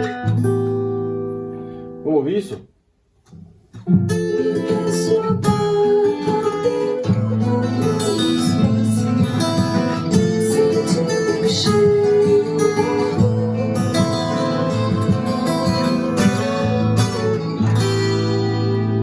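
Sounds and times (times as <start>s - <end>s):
acoustic guitar chords: 0.0s - 19.0s.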